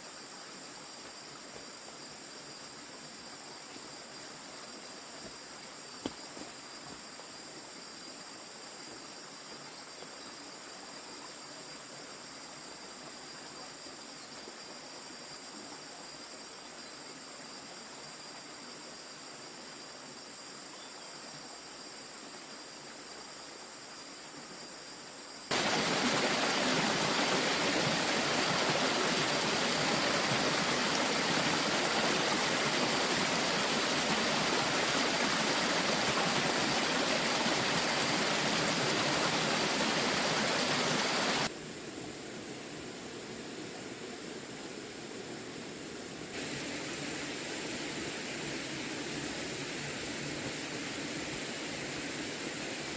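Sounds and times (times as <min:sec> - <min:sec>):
quiet steady hiss: 0:00.0 - 0:52.9.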